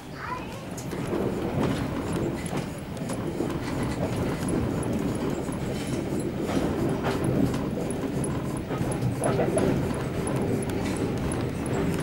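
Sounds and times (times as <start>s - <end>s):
train rumble: 0.0s - 12.0s
wheel-on-rail clicks: 0.2s - 12.0s.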